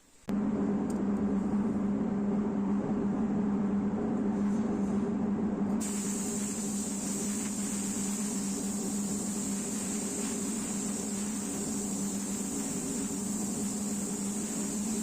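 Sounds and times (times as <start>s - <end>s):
workshop machine humming: 0.3s - 15.0s
air hissing: 5.8s - 15.0s.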